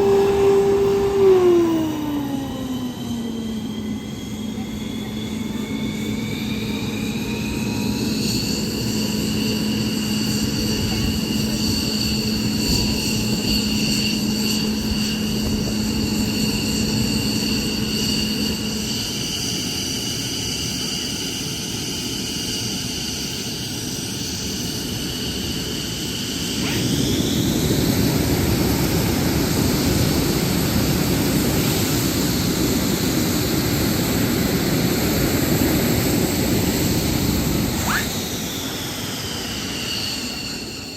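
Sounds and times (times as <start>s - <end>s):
low hum: 0.0s - 19.4s
jet engine rushing roar: 0.0s - 40.9s
jet engines whining: 0.0s - 40.9s.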